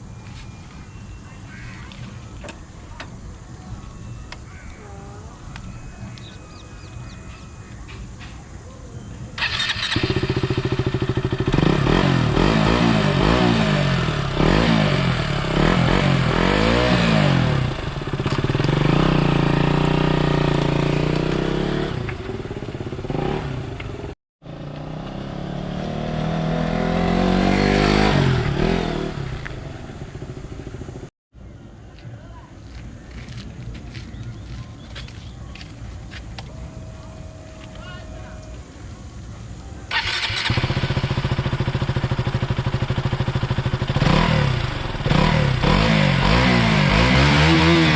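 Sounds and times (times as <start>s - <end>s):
motorcycle engine revving: 9.4s - 31.1s, 39.9s - 47.9s.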